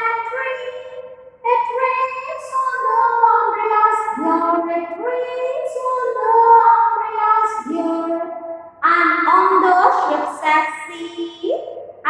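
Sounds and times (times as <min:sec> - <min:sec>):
woman singing nursery rhyme: 0:00.0 - 0:11.6.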